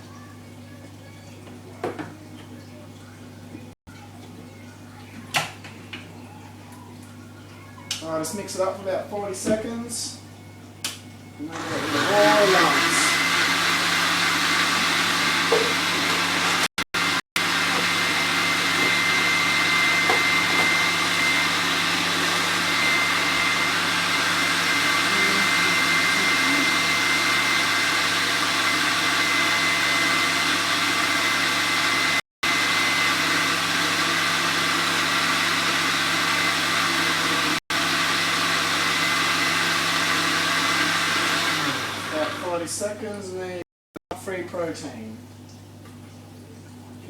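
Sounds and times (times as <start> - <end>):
blender motor whirring: 11.4 - 42.8.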